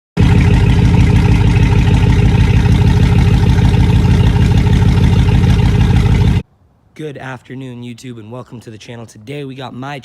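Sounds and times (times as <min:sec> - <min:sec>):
vehicle engine running: 0:00.2 - 0:06.4.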